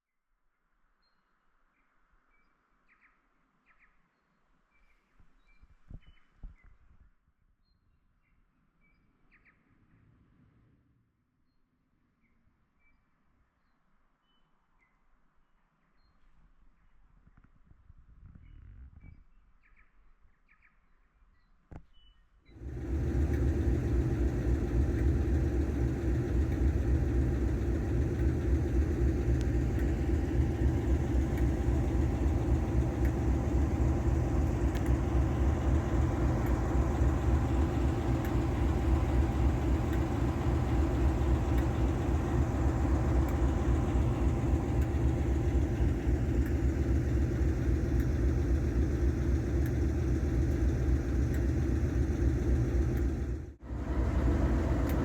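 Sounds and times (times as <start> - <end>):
diesel locomotive engine drone: 22.6 - 55.0.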